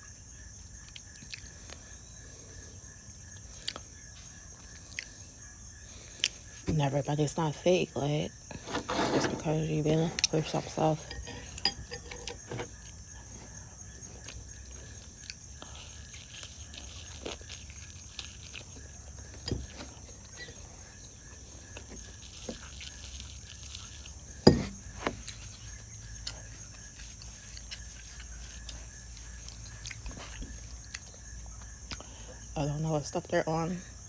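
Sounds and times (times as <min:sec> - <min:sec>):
chewing mouth noises: 0:12.7 - 0:24.4.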